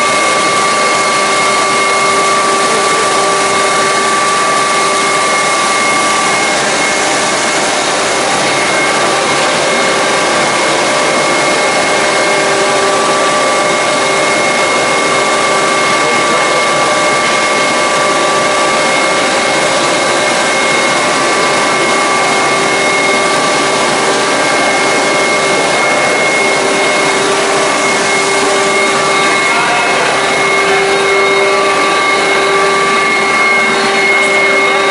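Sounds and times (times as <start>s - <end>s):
hydraulic pump running: 0.0s - 34.9s
steady whining tones: 0.0s - 34.9s.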